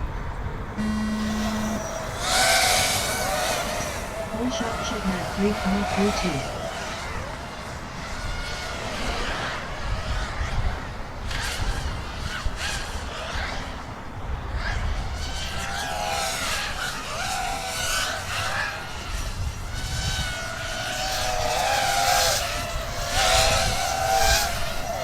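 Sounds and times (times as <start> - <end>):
drone motors whining: 0.8 - 6.7, 20.6 - 25.0.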